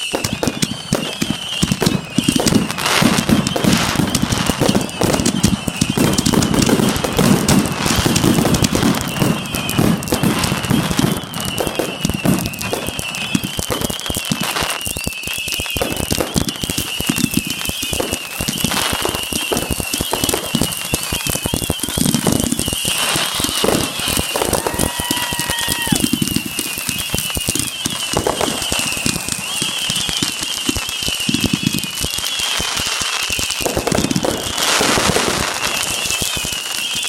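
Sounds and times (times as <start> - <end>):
fireworks booming: 0.0 - 37.0
fireworks cracking and popping: 0.0 - 37.0
wavering high whistle: 10.5 - 37.0.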